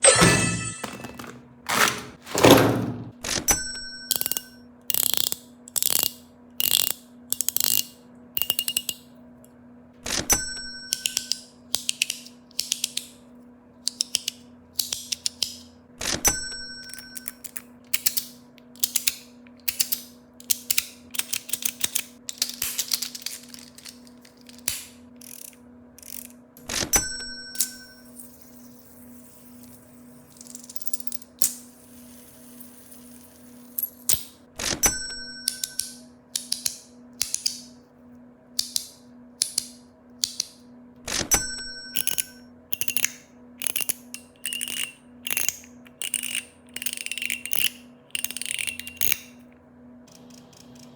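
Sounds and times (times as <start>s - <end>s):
fidget toy clicking and ratcheting: 4.1s - 9.1s, 16.9s - 26.4s, 42.0s - 49.4s.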